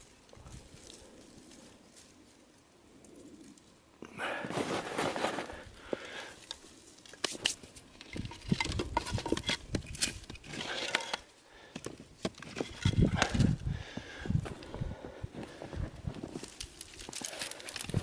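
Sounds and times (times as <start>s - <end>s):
wooden sticks snapping and knocking: 6.0s - 13.6s, 16.1s - 18.0s.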